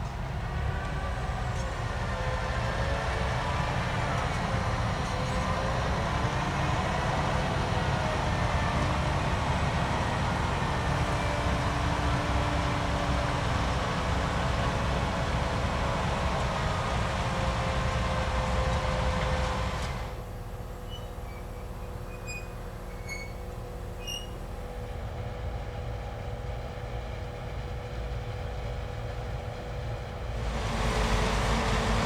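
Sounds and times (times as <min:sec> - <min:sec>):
harvester engine and machinery: 0:00.0 - 0:32.0
machinery whine: 0:00.0 - 0:32.0.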